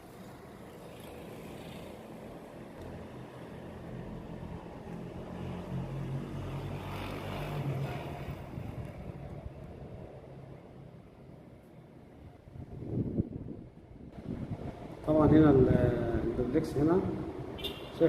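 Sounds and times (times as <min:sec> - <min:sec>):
vehicle engine passing: 0:00.6 - 0:09.5.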